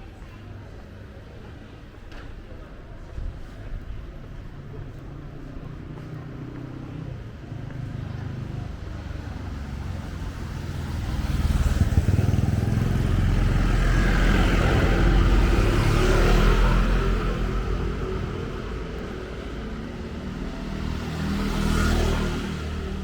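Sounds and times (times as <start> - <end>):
vehicle engine rumbling: 6.4 - 21.8.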